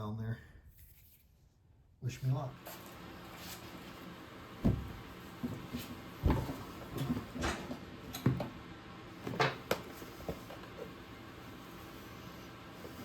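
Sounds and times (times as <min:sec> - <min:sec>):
dull thumps: 0:04.6 - 0:07.5.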